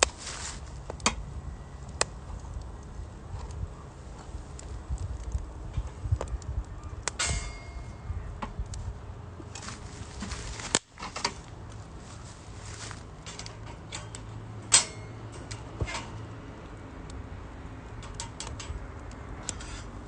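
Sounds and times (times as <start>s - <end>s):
wood fire snapping: 0.0s - 1.2s, 1.8s - 7.8s, 9.4s - 11.8s, 13.1s - 20.0s.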